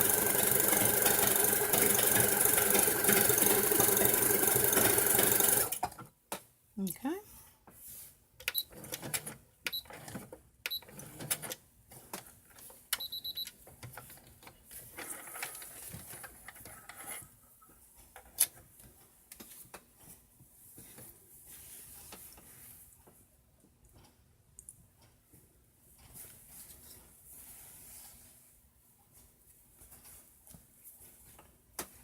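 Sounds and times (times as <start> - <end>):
sewing machine mechanical clicks: 0.0 - 5.8.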